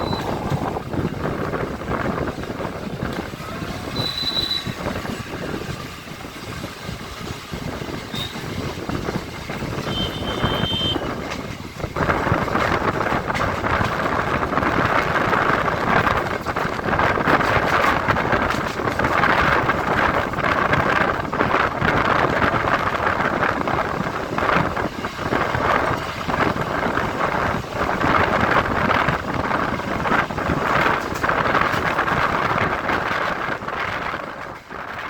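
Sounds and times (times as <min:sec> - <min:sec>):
high-pitched wheel squeals: 0:00.0 - 0:00.5, 0:03.5 - 0:04.9, 0:08.1 - 0:08.6, 0:09.8 - 0:11.1
train rumbling and rattling: 0:00.0 - 0:35.0.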